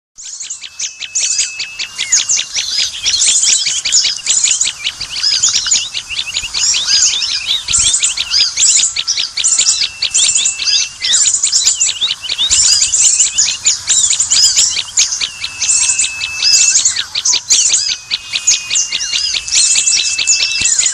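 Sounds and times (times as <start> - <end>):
held whistled note: 0.2 - 20.9
small birds chirping: 0.2 - 20.9.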